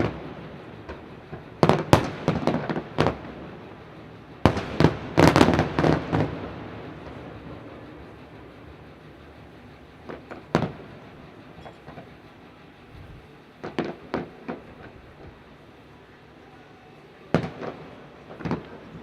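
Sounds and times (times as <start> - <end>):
small fireworks pops: 0.0 - 3.5, 13.6 - 15.5, 17.3 - 19.0
fireworks bangs: 0.0 - 8.6, 10.0 - 12.2, 13.6 - 15.4, 17.2 - 19.0.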